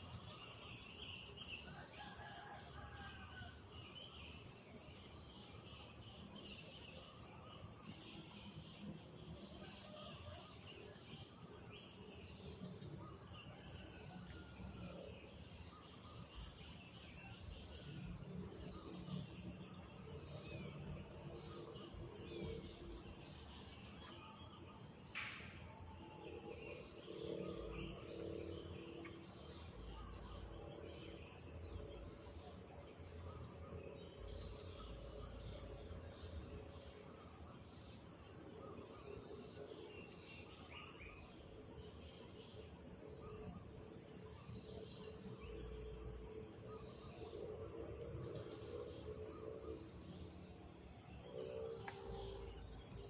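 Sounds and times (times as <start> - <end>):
high insect chorus: 0.0 - 53.0.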